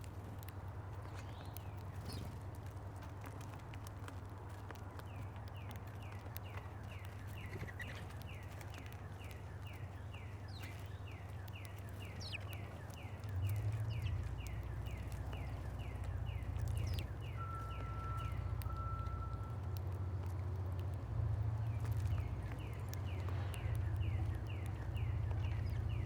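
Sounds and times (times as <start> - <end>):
low outdoor rumble: 0.0 - 26.0
small bird call notes: 5.0 - 20.9, 21.5 - 26.0.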